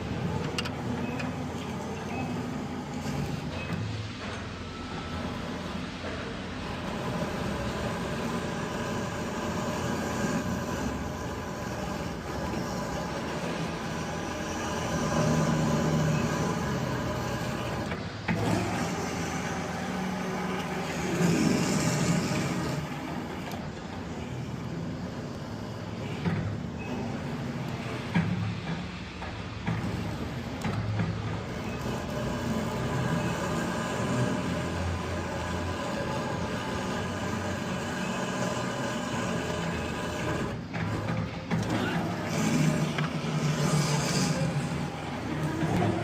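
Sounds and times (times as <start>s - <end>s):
heavy machine running: 0.0s - 46.0s.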